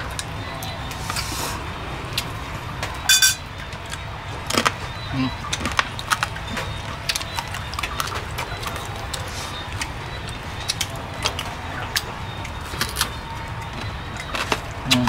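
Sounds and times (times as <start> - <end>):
crunchy chewing: 3.8 - 15.0.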